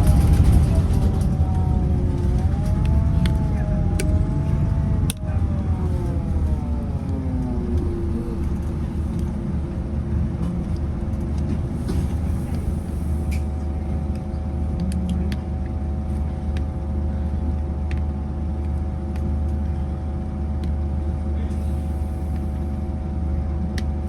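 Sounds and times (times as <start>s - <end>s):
bus engine droning: 0.0s - 23.8s.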